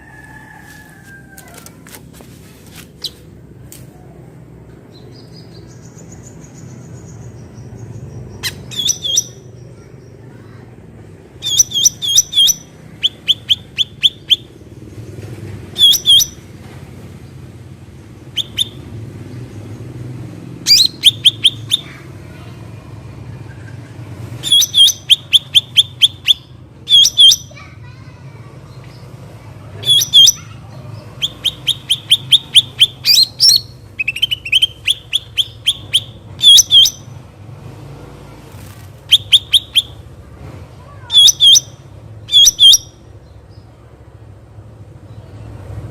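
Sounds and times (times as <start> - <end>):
songbird sharp high chirps: 4.9 - 9.6, 11.4 - 14.5, 15.8 - 16.4, 18.4 - 18.8, 20.7 - 22.0, 24.4 - 27.6, 29.8 - 37.2, 39.0 - 40.0, 41.1 - 43.6.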